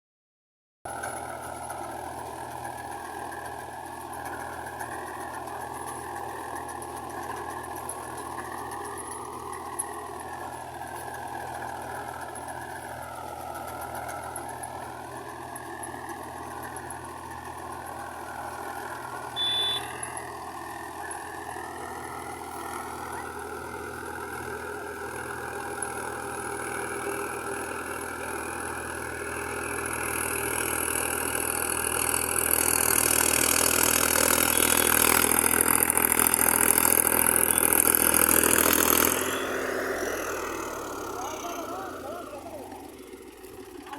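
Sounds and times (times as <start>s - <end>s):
tractor diesel engine running: 0.9s - 43.9s
short high-pitched beep: 19.4s - 20.0s.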